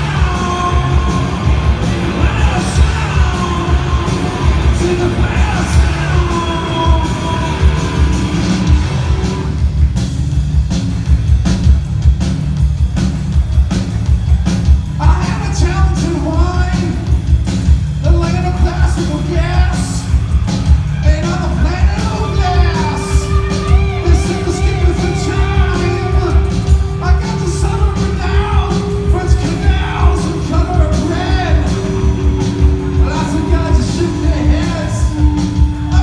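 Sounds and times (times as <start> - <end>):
shouted sung vocals: 0.0 - 9.3, 19.3 - 36.0
drum hits: 0.0 - 36.0
live rock band playing: 0.0 - 36.0.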